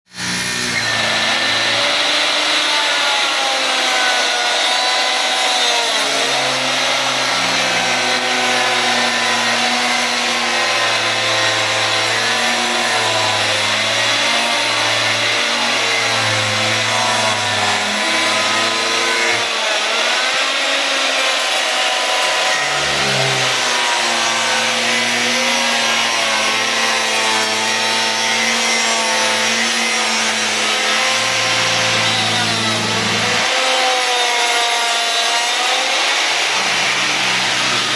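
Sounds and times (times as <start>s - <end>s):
power tool cutting wood: 0.1s - 37.9s.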